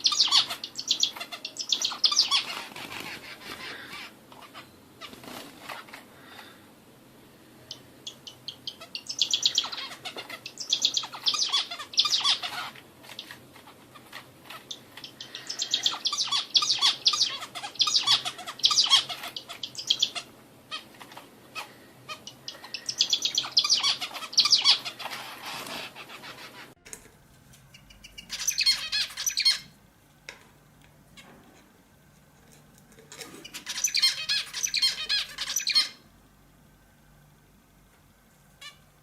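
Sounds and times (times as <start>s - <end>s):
songbird chirping rapidly: 0.0s - 5.2s, 7.7s - 13.3s, 13.9s - 25.3s, 27.7s - 29.8s, 33.4s - 36.1s.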